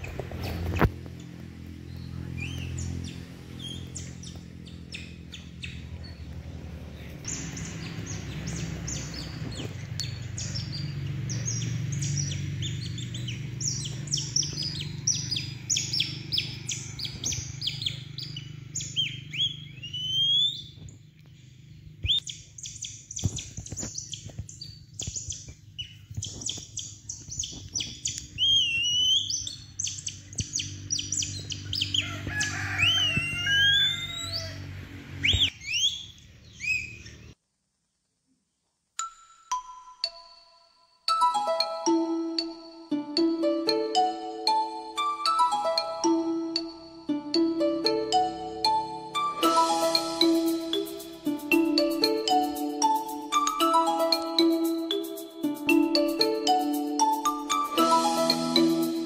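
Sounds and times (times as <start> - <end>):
birds chirping: 0.0 - 37.4
rising whistled bird calls: 2.4 - 5.8, 7.3 - 20.8, 22.0 - 34.6, 35.2 - 37.3.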